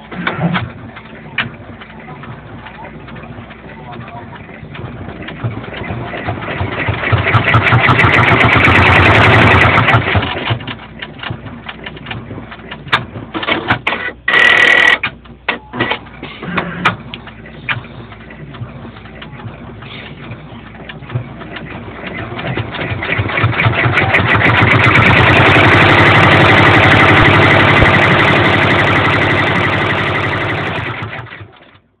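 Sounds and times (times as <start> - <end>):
embroidery machine stitching: 0.0 - 31.8
loud steady tone: 14.3 - 15.9.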